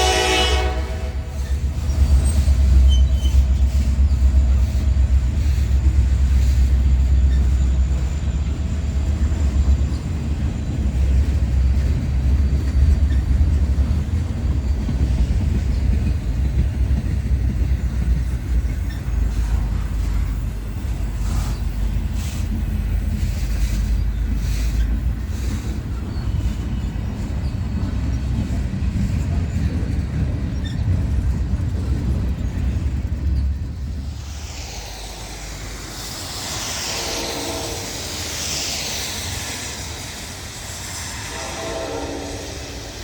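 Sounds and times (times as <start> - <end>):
train horn blasts: 0.0 - 1.6, 36.9 - 38.2, 41.2 - 42.9
hissing rail and wheel noise: 0.0 - 43.0
train rumbling by: 0.0 - 43.0.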